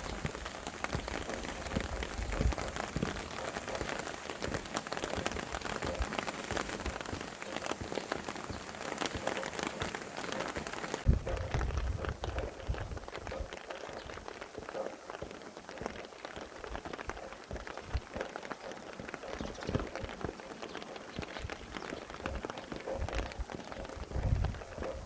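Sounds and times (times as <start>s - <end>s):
low rumble of wind: 0.0s - 6.2s, 11.0s - 14.3s, 21.2s - 25.0s
rain falling: 0.0s - 25.0s.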